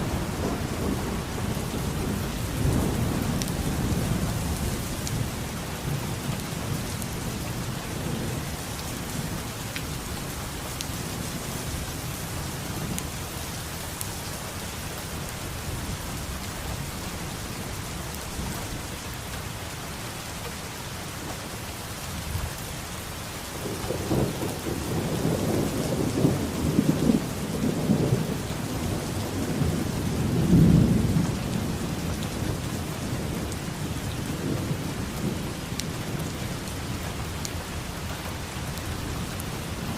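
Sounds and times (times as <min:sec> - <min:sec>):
rolling thunder: 0:00.0 - 0:09.5, 0:23.6 - 0:37.0
heavy rain: 0:00.0 - 0:39.9.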